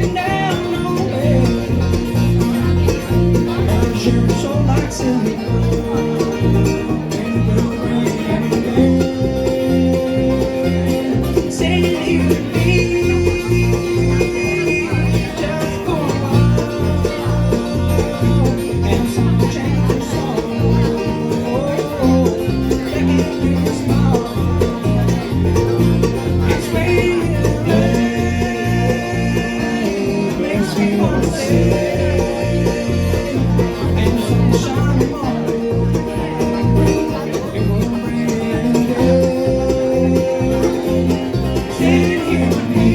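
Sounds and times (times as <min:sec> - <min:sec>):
banjo: 0:00.0 - 0:42.9
bouncing bass: 0:00.0 - 0:42.9
guitar: 0:00.0 - 0:42.9.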